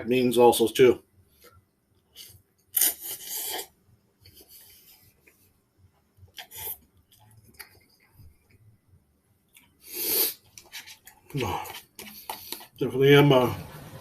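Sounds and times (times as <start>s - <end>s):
raspy hissing mouth sounds: 2.8s - 3.8s, 9.8s - 10.5s.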